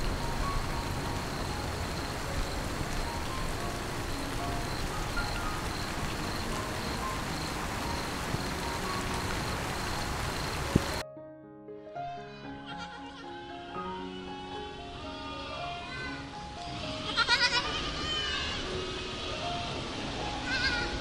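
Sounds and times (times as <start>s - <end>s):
heavy rain on foliage: 0.0s - 11.0s, 18.4s - 21.0s
pulsing insect trill: 0.0s - 11.0s.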